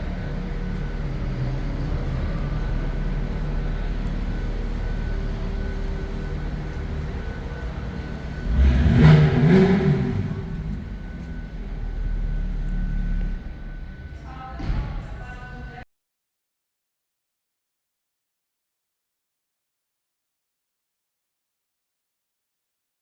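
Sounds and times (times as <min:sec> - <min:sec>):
car engine idling and revving: 0:00.0 - 0:15.5.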